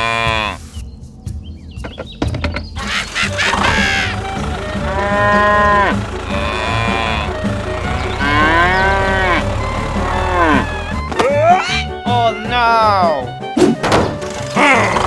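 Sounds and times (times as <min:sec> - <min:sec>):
cow mooing: 0:00.0 - 0:00.6, 0:03.7 - 0:11.0
background music with low beat: 0:00.0 - 0:02.8.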